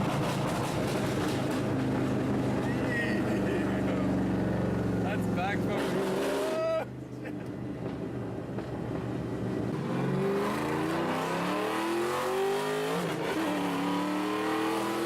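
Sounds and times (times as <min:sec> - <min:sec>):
car engine accelerating hard: 0:09.6 - 0:15.0.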